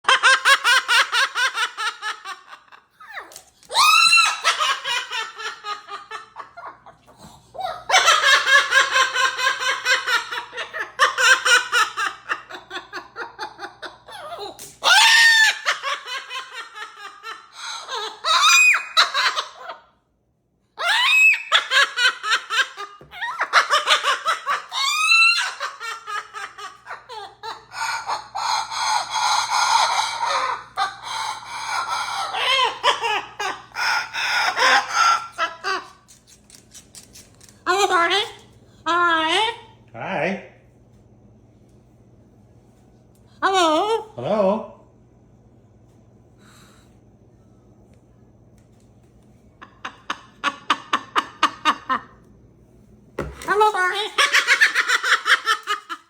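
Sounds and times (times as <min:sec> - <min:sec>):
high-pitched laughing: 0:00.0 - 0:19.9.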